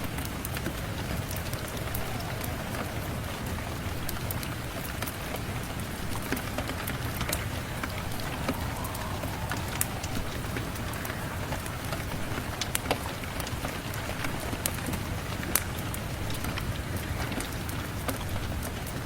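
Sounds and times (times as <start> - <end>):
wood fire crackling: 0.0 - 18.8
steady rain: 0.0 - 19.0.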